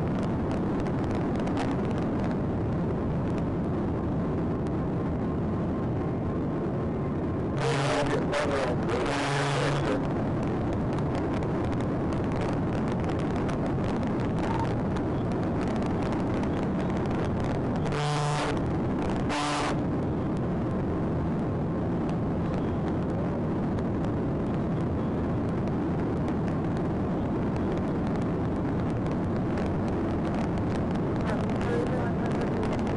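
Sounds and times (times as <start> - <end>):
car engine road and wind noise: 0.0 - 32.9.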